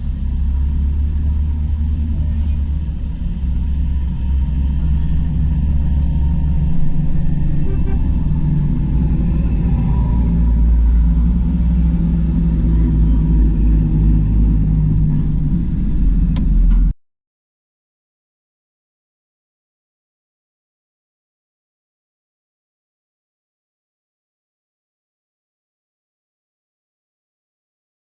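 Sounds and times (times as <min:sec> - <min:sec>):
diesel tractor engines rumbling: 0:00.0 - 0:17.0.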